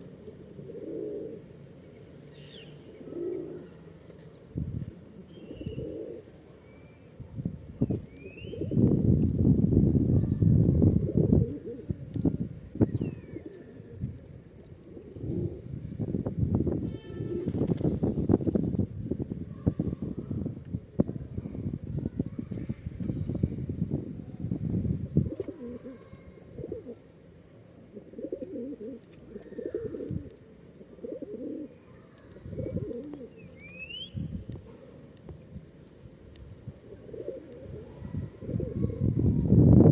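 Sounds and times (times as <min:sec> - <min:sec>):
pigeons cooing: 0:00.0 - 0:01.6, 0:02.5 - 0:04.3, 0:05.1 - 0:06.4, 0:08.1 - 0:08.9, 0:10.2 - 0:12.0, 0:12.8 - 0:15.8, 0:25.1 - 0:27.0, 0:27.8 - 0:34.1, 0:36.7 - 0:39.5
small bird chirp: 0:02.3 - 0:04.6, 0:05.3 - 0:07.1, 0:07.9 - 0:08.7, 0:32.1 - 0:34.4
wings flapping: 0:17.3 - 0:18.6
high falling bird chirps: 0:33.4 - 0:34.3.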